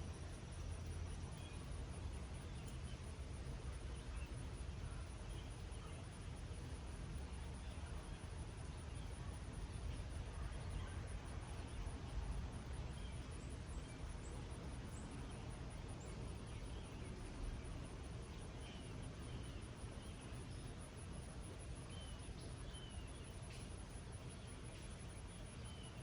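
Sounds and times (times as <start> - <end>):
insect trill: 0.0 - 26.0
light rain hissing: 0.0 - 26.0.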